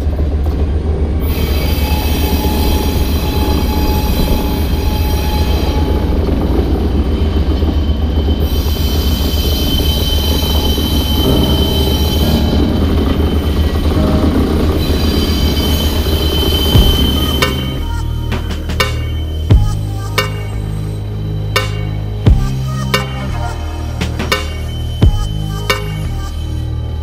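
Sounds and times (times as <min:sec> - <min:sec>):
freight train rolling past: 0:00.0 - 0:19.5
diesel locomotive engine rumble: 0:00.0 - 0:27.0
high wheel squeal: 0:01.2 - 0:27.0.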